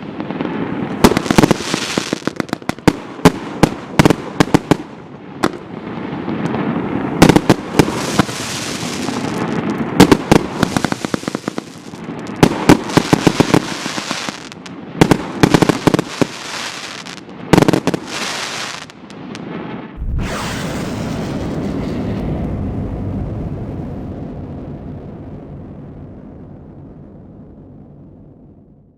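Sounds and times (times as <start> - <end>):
firework cracking bangs: 0.0 - 23.2
firework hissing and crackle: 0.2 - 2.8, 5.9 - 22.5
rushing noise with low rumble: 20.0 - 24.1.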